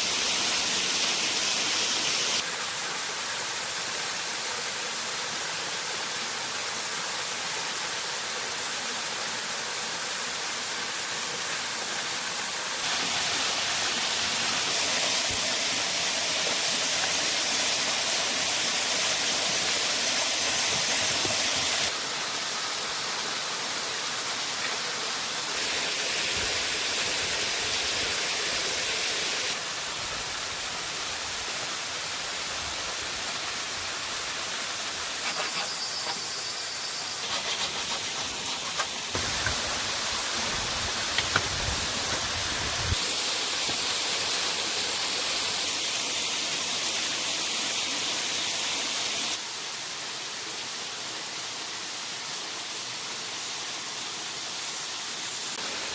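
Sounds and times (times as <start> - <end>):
waterfall rushing: 12.8 - 36.2.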